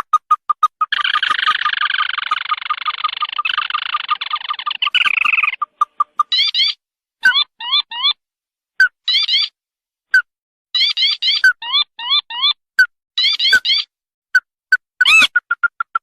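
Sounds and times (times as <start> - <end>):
bird chattering trill: 0.0 - 8.2, 9.1 - 9.5, 10.8 - 12.6, 13.2 - 13.9, 15.0 - 16.0
bird piping notes: 0.0 - 8.2
bird up-slurred notes: 0.0 - 8.2.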